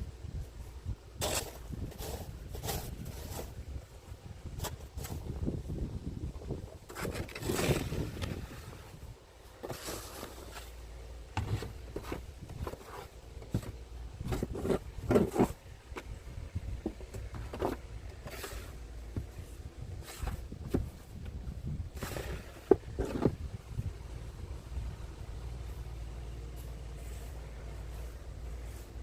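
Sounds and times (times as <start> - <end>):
wind on microphone: 0.0 - 9.2, 13.5 - 25.7
snow shovel scraping snow: 1.2 - 3.6, 7.0 - 8.9, 9.6 - 10.8, 11.4 - 15.6, 17.6 - 18.8, 21.9 - 23.4.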